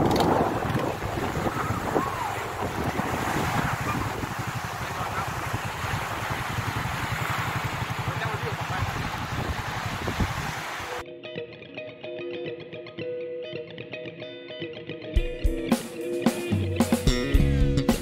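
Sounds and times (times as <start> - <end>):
wind on microphone: 0.0 - 10.9
small waves washing: 0.0 - 11.0
motorcycle engine idling: 3.7 - 9.4.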